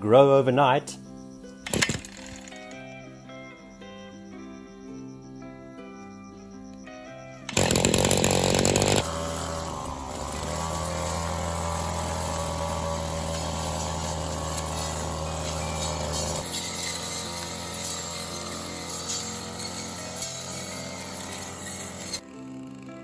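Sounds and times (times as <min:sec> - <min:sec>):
background music: 0:00.0 - 0:23.0
petrol brush cutter running: 0:01.7 - 0:02.8, 0:07.5 - 0:23.0.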